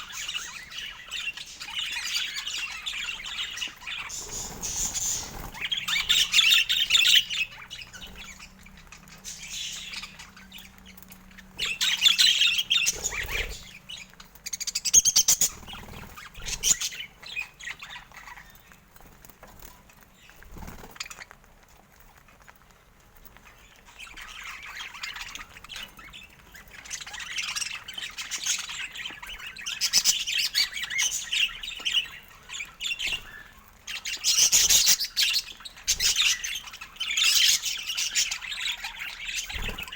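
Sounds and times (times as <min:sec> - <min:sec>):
budgerigar chatter: 0:00.0 - 0:10.8, 0:11.5 - 0:14.1.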